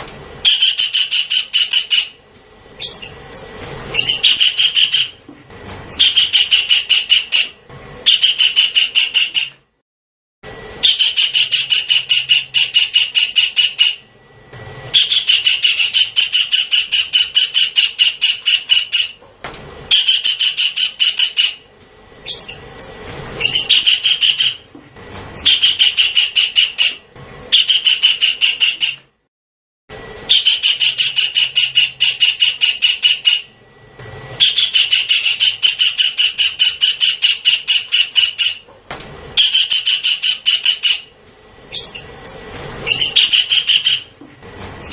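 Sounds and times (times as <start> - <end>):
kingfisher chattering calls: 0.4 - 2.2, 2.8 - 5.2, 5.9 - 9.5, 10.8 - 14.0, 14.9 - 19.2, 19.9 - 21.6, 22.2 - 24.6, 25.4 - 29.0, 30.3 - 33.5, 34.4 - 38.6, 39.4 - 41.1, 41.7 - 44.1.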